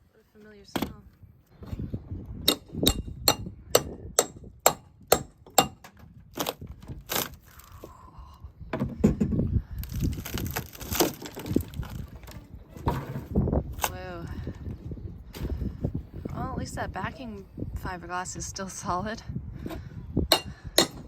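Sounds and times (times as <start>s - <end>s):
wood cracking and breaking: 6.3s - 7.7s, 9.9s - 13.0s.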